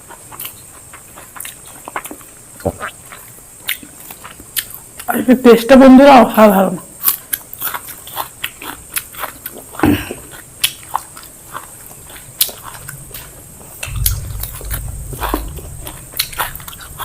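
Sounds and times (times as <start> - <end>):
wet chewing mouth clicks: 7.0 - 17.0
low rumble: 13.8 - 17.0.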